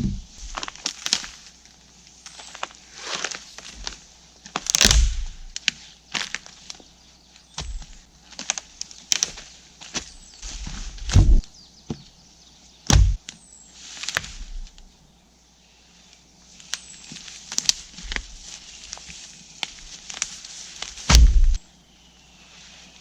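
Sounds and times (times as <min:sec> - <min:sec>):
dry wood cracking and thumping: 0:00.0 - 0:06.8, 0:07.5 - 0:12.0, 0:12.9 - 0:13.3, 0:14.0 - 0:14.9, 0:16.6 - 0:21.6
twigs crackling and snapping: 0:00.0 - 0:12.2, 0:12.8 - 0:14.9, 0:16.1 - 0:21.6.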